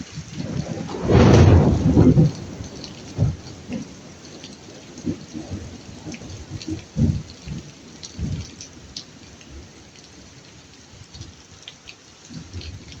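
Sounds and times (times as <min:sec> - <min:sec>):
low thunder rumbles: 0:00.0 - 0:09.9
raindrop ticks: 0:00.0 - 0:13.0
steady rain falling: 0:00.0 - 0:13.0.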